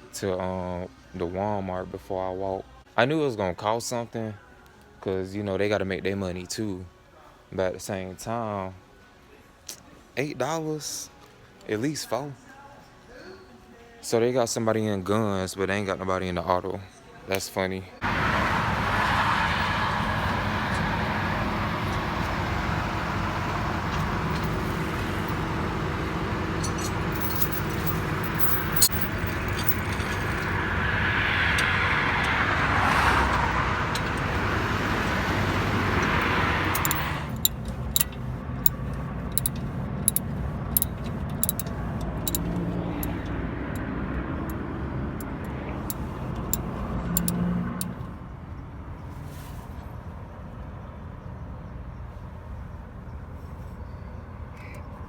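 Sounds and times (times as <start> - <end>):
vehicle passing: 18.0 - 48.3
road traffic: 18.0 - 55.0
sharp clicks: 36.7 - 42.5.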